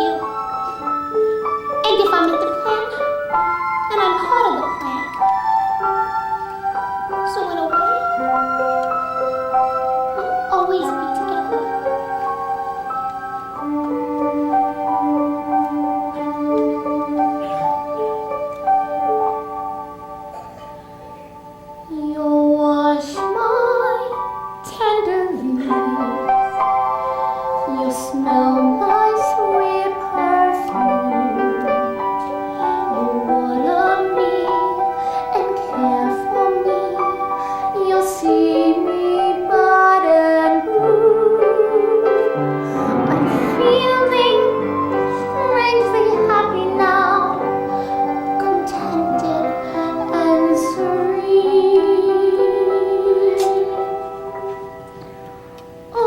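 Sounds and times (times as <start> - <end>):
instrumental accompaniment: 0.0 - 56.0
keyboard chords: 0.0 - 56.0
woman singing slow song: 21.9 - 26.5, 27.7 - 53.8
woman singing a slow ballad: 24.7 - 26.3, 27.7 - 31.9, 32.6 - 37.0.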